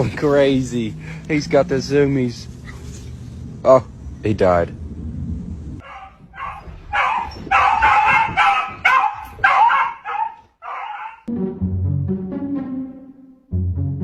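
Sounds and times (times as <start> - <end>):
dog yipping and barking: 5.8 - 11.3.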